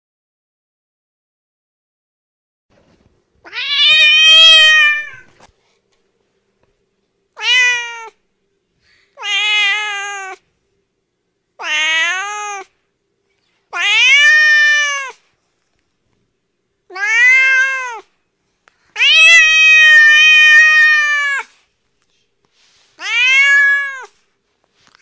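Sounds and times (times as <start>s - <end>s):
cat meowing: 3.4s - 5.3s, 7.4s - 8.2s, 9.2s - 10.4s, 11.6s - 12.7s, 13.7s - 15.2s, 16.9s - 18.1s, 19.0s - 21.5s, 23.0s - 24.2s.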